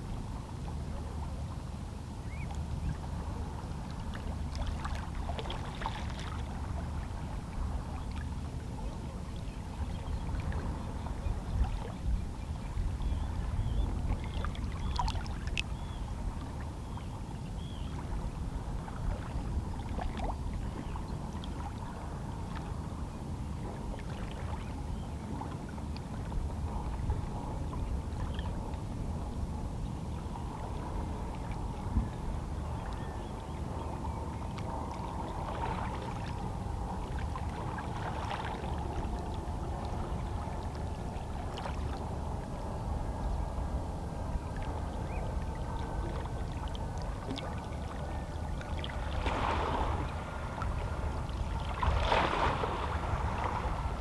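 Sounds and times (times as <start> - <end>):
small waves sloshing on rocks: 48.8 - 54.0.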